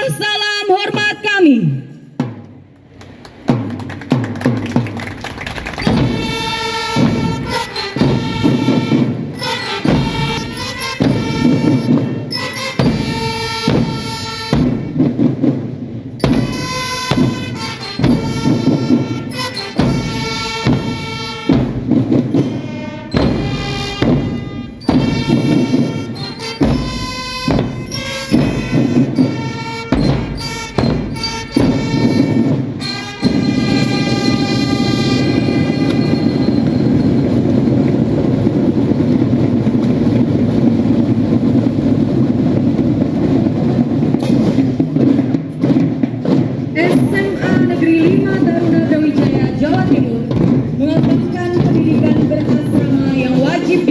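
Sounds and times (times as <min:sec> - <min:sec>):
drums: 0:00.0 - 0:53.9
trumpets: 0:04.9 - 0:15.4, 0:16.2 - 0:42.1.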